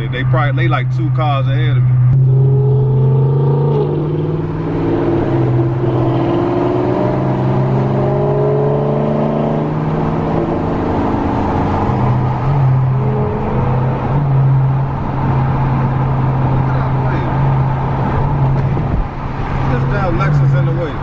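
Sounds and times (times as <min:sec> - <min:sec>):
car engine exhaust rumbling: 0:00.0 - 0:21.0.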